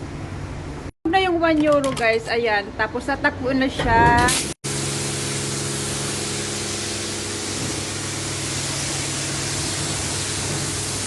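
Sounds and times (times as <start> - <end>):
pressure washer spraying water: 4.3 - 11.0.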